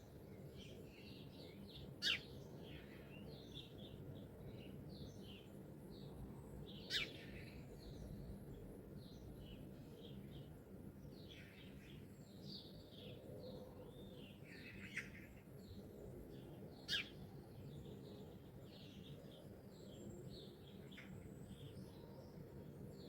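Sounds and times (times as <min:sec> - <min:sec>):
songbirds chirping and trilling: 0:00.0 - 0:23.0.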